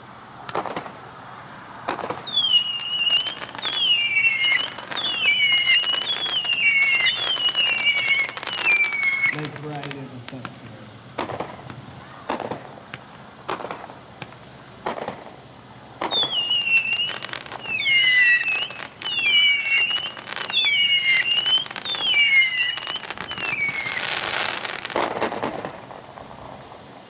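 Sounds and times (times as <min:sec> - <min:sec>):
falling firework whistles: 0:00.0 - 0:27.0
firework crackling: 0:00.0 - 0:27.0
firework shot reports: 0:00.0 - 0:27.0.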